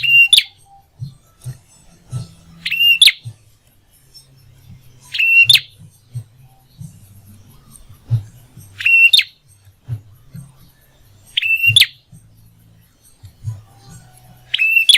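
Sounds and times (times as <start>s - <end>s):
bird calling: 0.0s - 0.7s, 2.6s - 3.2s, 5.1s - 5.8s, 8.6s - 9.4s, 11.3s - 12.0s, 14.4s - 14.9s.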